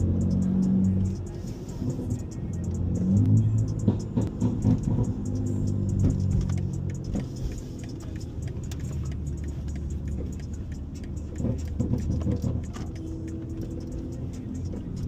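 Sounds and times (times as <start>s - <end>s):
car engine running: 0.0s - 15.0s
light clicks and rattles: 3.6s - 15.0s.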